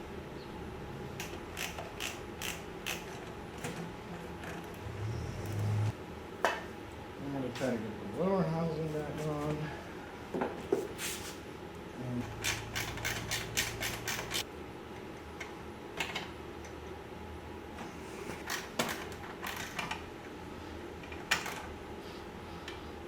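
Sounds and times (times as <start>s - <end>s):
metal parts and tools clicking: 12.4s - 14.4s.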